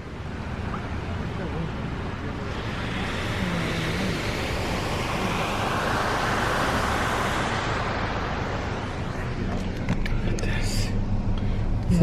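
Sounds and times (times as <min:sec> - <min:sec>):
tyres hissing through water: 0:02.1 - 0:09.1.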